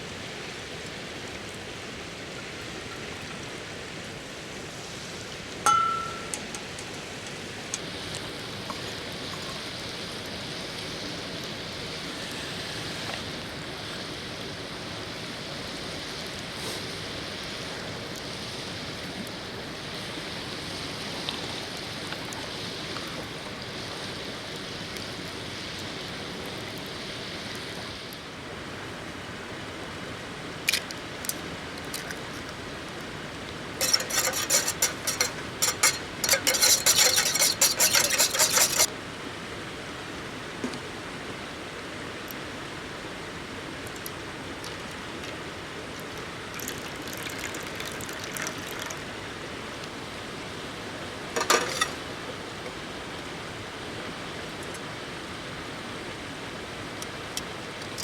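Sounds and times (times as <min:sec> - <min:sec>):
river flowing over stones: 0:00.0 - 0:12.1, 0:27.8 - 0:58.0
sharp clicks and knocks: 0:05.7 - 0:07.8.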